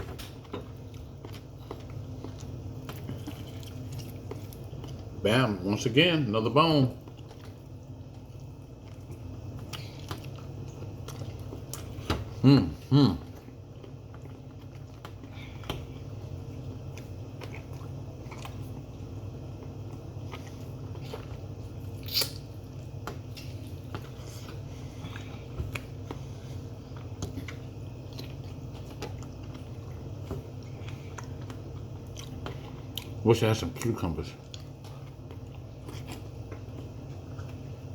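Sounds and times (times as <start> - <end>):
steady low hum: 0.0 - 37.9
person chewing and biting: 0.6 - 5.2, 19.8 - 33.2, 34.4 - 37.7.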